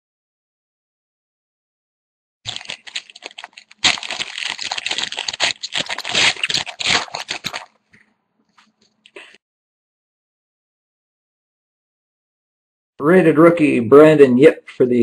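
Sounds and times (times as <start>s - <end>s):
foil wrapper crinkling and tearing: 2.5s - 7.8s.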